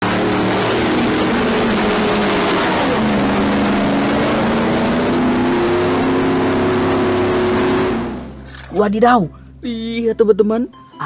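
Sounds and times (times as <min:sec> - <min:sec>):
vehicle engine running: 0:00.0 - 0:08.7.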